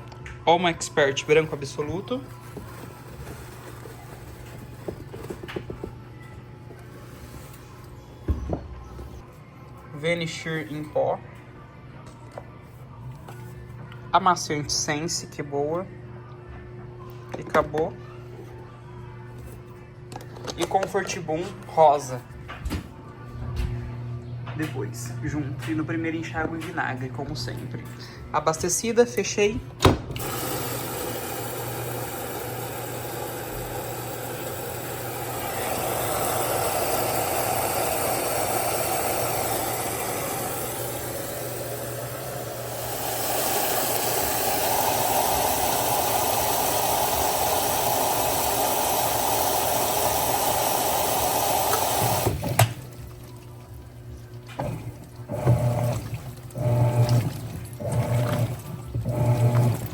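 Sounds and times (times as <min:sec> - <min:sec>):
washing machine filling with water: 0:30.2 - 0:59.9.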